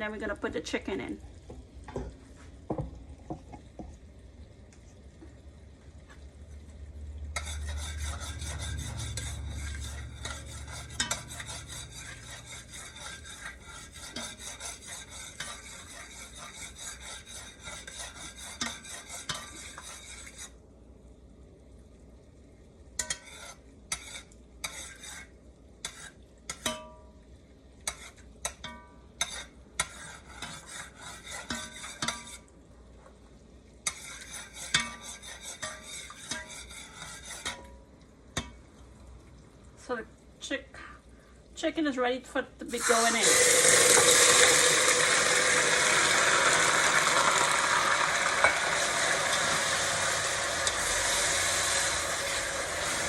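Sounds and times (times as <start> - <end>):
sugar sizzling in hot oil: 6.8 - 38.7, 41.7 - 53.0
spoon scraping and tapping pot: 7.3 - 20.6, 23.0 - 27.1, 27.8 - 32.5, 33.8 - 38.6, 46.2 - 53.0.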